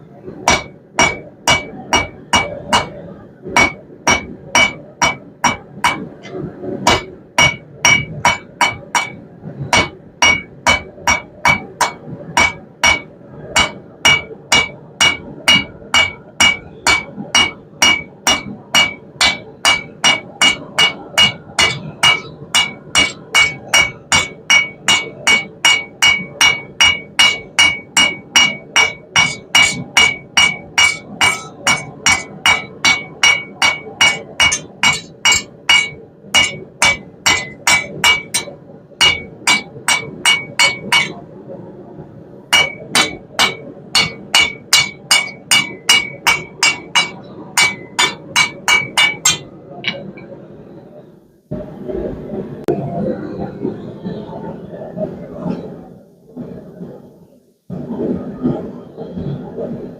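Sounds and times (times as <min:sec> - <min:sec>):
hammer striking steel on anvil: 0:00.5 - 0:03.0, 0:03.6 - 0:41.2, 0:42.5 - 0:50.3.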